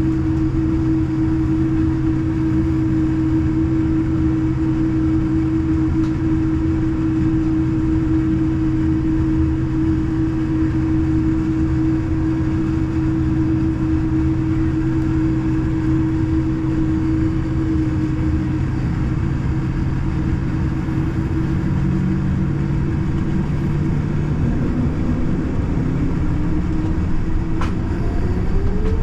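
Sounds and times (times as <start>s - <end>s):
aircraft engine hum: 0.0s - 29.0s
click: 27.6s - 27.8s.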